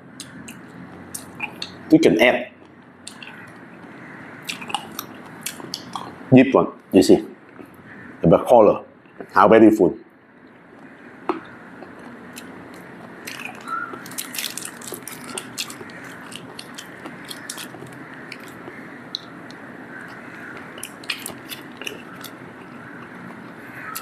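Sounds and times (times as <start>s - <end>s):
person chewing food: 0.2s - 1.8s, 4.4s - 6.2s, 10.5s - 24.0s
sharp wet clicks: 0.2s - 1.8s, 2.6s - 6.2s, 10.8s - 24.0s.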